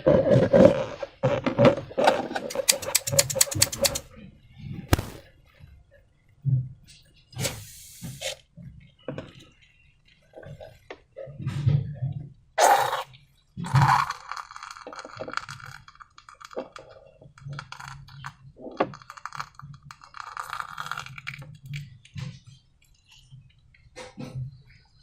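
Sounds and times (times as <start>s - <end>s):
slime and balloons crackling: 4.9s - 5.2s.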